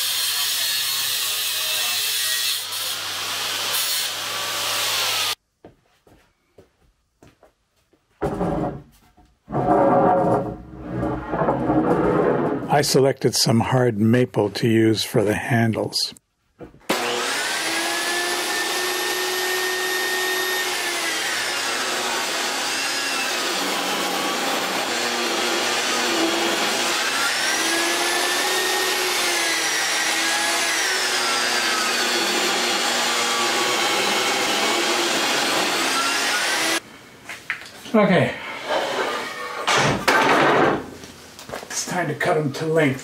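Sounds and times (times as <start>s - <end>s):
power tool motor whine: 16.9s - 22.6s.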